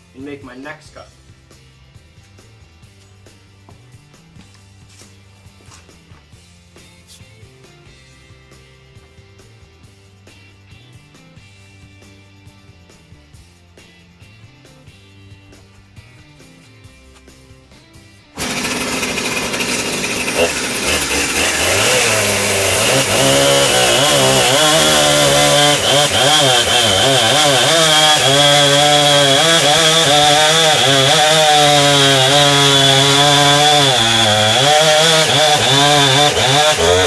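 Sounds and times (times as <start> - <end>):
chainsaw cutting log: 18.4 - 37.0.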